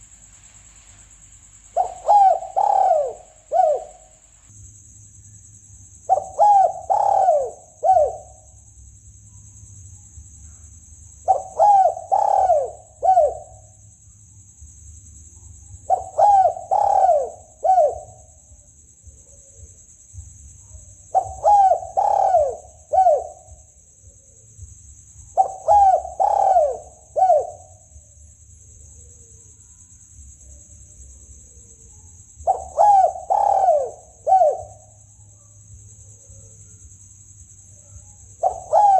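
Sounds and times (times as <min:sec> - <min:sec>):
dove cooing: 0:01.7 - 0:04.1, 0:06.1 - 0:08.4, 0:11.2 - 0:13.7, 0:15.8 - 0:18.3, 0:21.1 - 0:23.6, 0:25.4 - 0:27.9, 0:32.4 - 0:35.0, 0:38.4 - 0:38.9.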